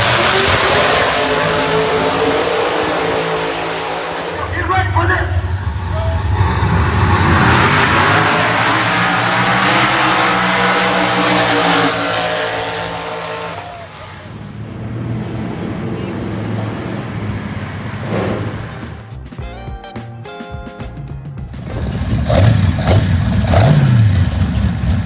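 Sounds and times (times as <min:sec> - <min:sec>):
car engine running: 0:21.5 - 0:25.0.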